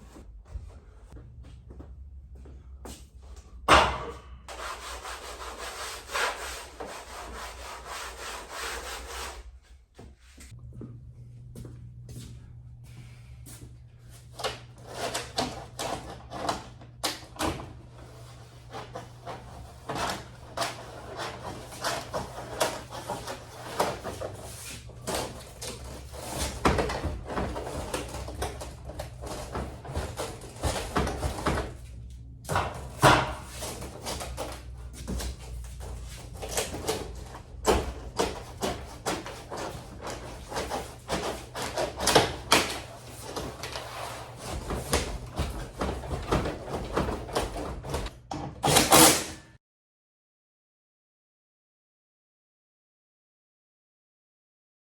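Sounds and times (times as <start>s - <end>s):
steady low hum: 10.4s - 48.0s.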